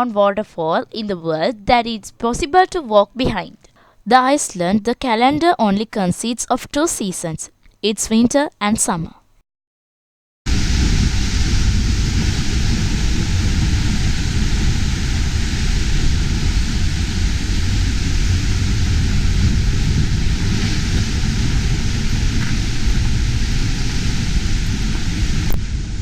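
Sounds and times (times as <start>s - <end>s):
waterfall rushing: 10.5s - 26.0s.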